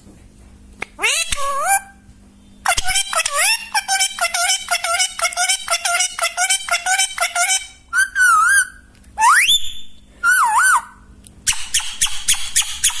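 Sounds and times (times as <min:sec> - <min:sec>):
parakeet drawn-out whistles: 0:08.0 - 0:13.0.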